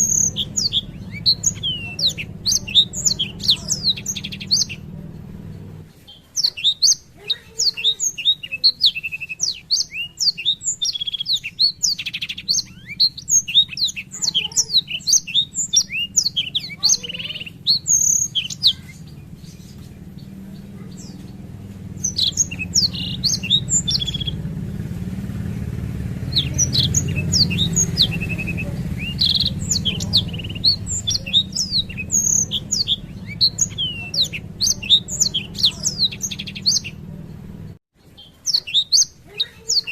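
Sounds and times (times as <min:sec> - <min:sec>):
low steady hum: 0:00.0 - 0:06.2
canary singing: 0:00.0 - 0:39.9.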